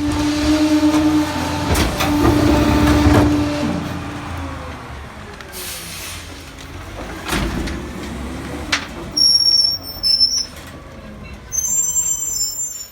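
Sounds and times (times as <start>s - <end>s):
garbage truck rumbling: 0.0s - 12.9s.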